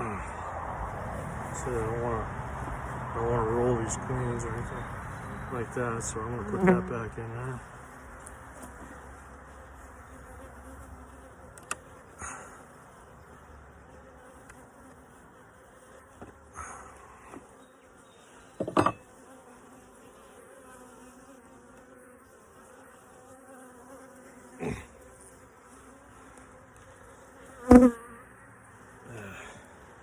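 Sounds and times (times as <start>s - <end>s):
honeybees buzzing: 0.0s - 30.0s
knocks: 18.6s - 19.0s.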